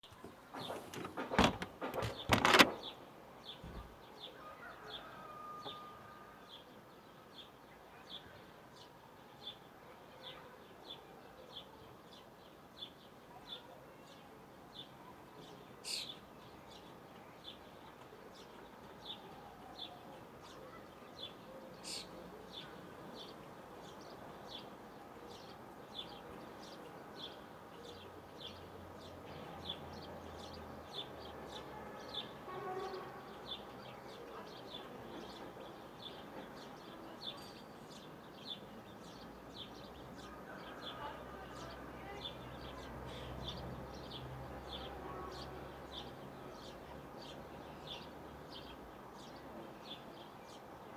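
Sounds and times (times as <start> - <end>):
loud knocks and rustles: 0.1 - 2.9.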